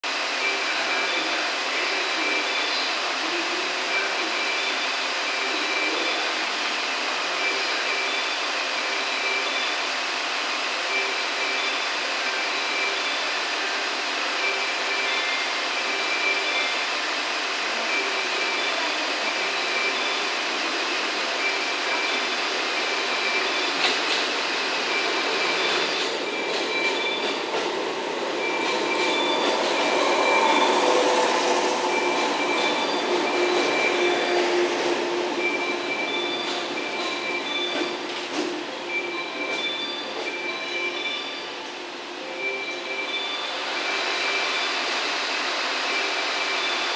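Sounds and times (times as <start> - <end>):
electric train braking: 0.2 - 46.9
on-off electronic tone: 24.8 - 41.6
wheel and brake squeal: 28.4 - 38.1.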